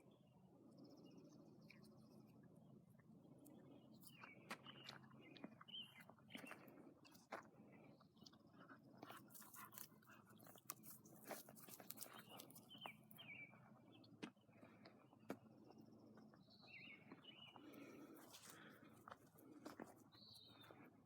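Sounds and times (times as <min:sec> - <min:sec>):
small birds chirping: 0:00.0 - 0:21.0
dog chewing grass: 0:08.3 - 0:13.1.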